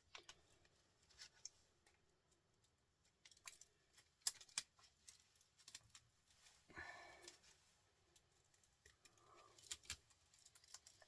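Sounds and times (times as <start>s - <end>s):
clicks and snips of hand work: 2.6s - 6.5s, 8.1s - 11.0s.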